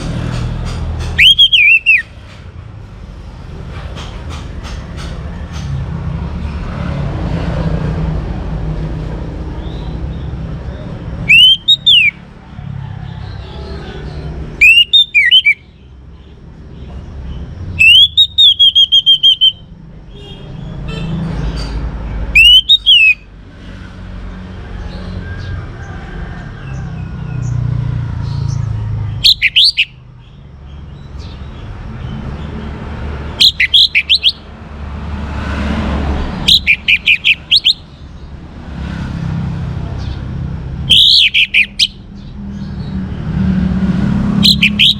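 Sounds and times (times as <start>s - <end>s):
thrush singing whistled phrases: 1.1s - 2.1s, 11.3s - 12.2s, 14.6s - 15.8s, 17.8s - 19.7s, 22.3s - 23.3s, 29.2s - 30.0s, 33.3s - 34.5s, 36.4s - 37.9s, 40.9s - 42.0s, 44.4s - 44.9s.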